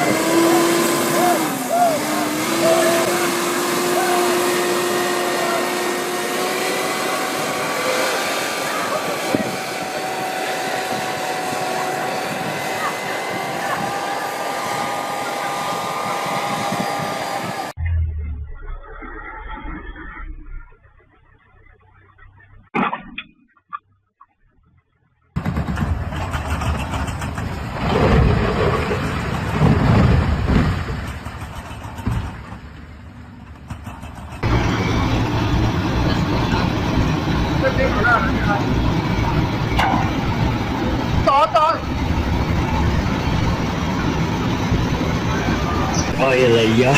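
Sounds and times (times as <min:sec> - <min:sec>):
vehicle engine running: 0:00.0 - 0:18.6, 0:28.4 - 0:46.9.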